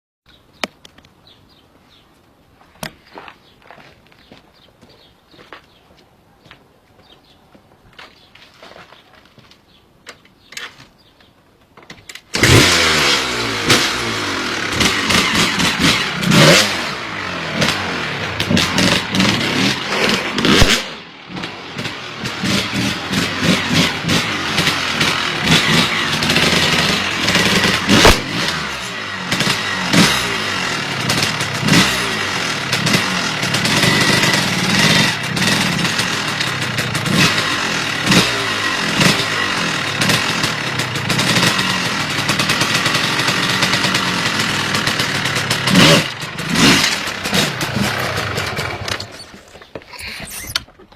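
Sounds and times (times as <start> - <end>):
motorcycle engine revving: 12.3 - 50.6
sharp crack: 13.6 - 30.4.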